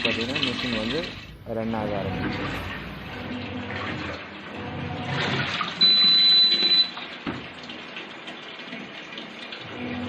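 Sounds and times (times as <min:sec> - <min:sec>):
water sloshing in washing machine: 0:00.0 - 0:10.0
loud high beep: 0:05.8 - 0:07.0.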